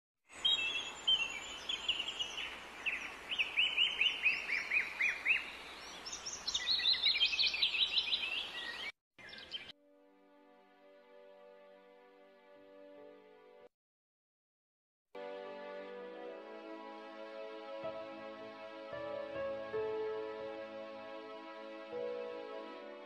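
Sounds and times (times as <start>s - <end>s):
birds chirping: 0.3s - 9.7s
steady background hiss: 0.4s - 6.5s
soft music: 9.7s - 13.7s, 15.2s - 23.0s.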